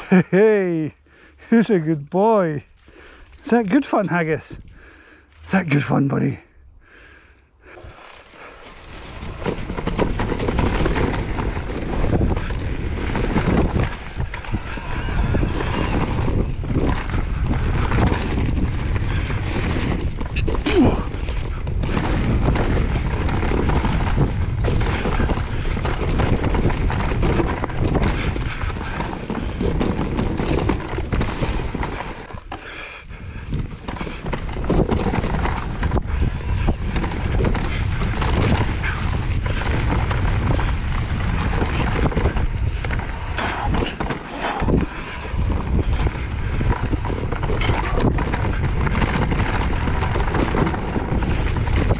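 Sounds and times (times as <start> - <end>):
bike tyres on trail: 0.0 - 51.9
wind buffeting microphone: 7.6 - 51.9
knocks and rattles from bumps: 9.0 - 14.2.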